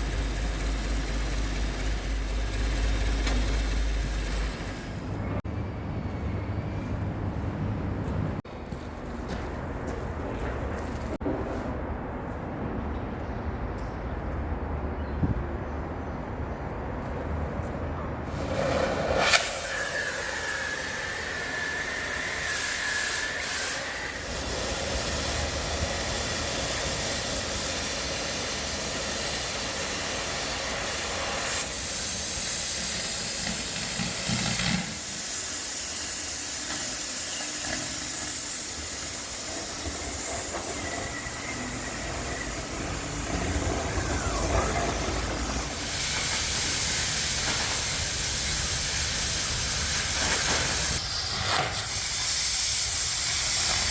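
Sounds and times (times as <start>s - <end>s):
cutting torch hissing: 0.0s - 5.4s, 18.3s - 53.9s.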